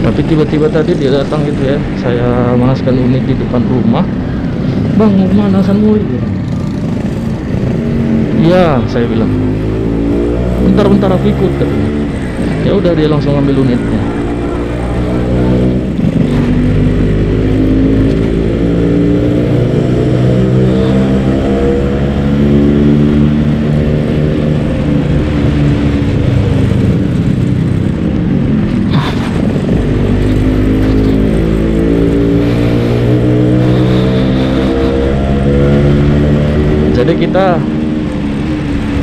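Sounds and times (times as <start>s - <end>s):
motorcycle engine revving: 0.0s - 39.0s
wind rumble on microphone: 22.2s - 39.0s.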